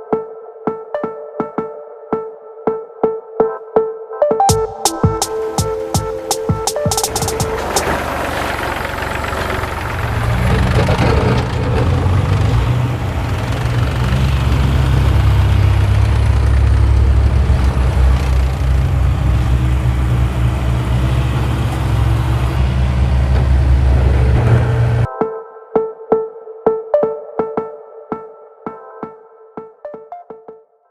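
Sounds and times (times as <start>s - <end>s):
heavy engine rumbling: 6.4s - 25.1s.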